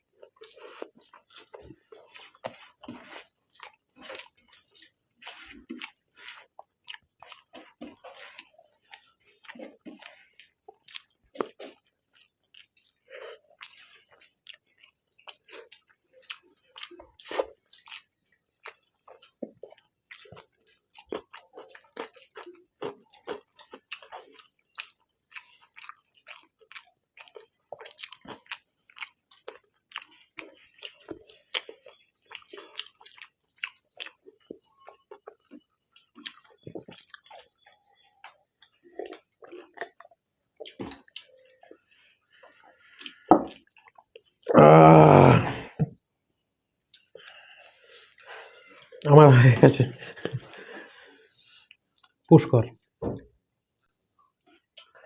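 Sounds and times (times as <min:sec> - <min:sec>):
people chewing food: 0:00.0 - 0:55.0
wet mouth clicks and smacks: 0:46.9 - 0:47.4.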